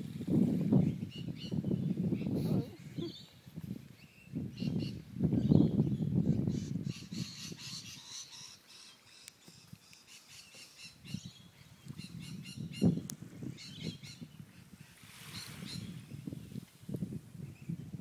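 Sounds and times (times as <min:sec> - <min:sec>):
birds squawking and chirping: 0:04.6 - 0:13.0
low rumble on microphone: 0:15.6 - 0:18.0.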